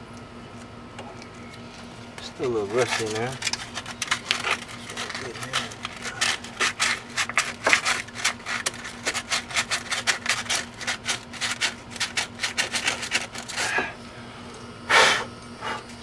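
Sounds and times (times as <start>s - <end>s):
scraping rusty metal: 1.6s - 14.0s.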